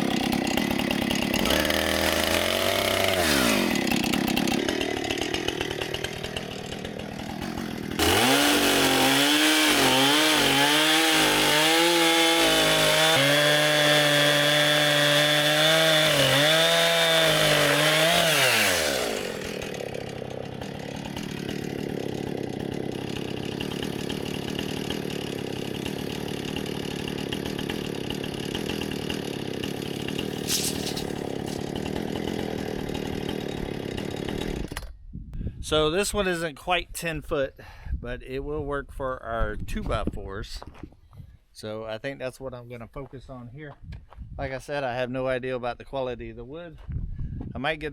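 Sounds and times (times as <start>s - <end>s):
chainsaw cutting log: 0.0s - 35.0s.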